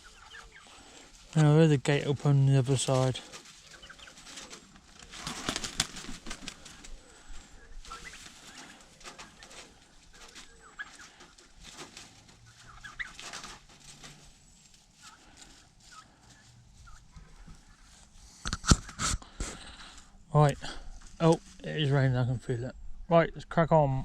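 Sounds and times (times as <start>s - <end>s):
turkeys and chickens clucking: 0.0s - 1.4s, 3.3s - 19.0s
rustling: 0.0s - 20.0s.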